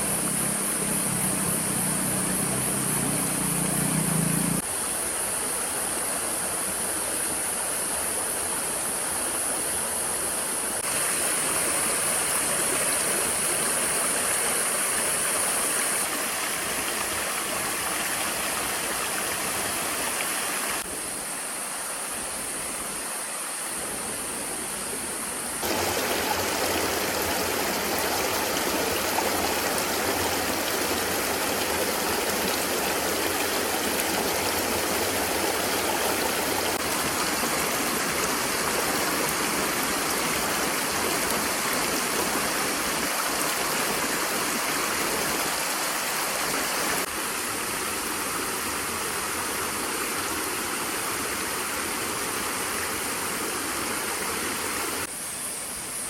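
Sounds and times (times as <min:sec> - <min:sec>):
stream rushing: 0:00.0 - 0:56.0.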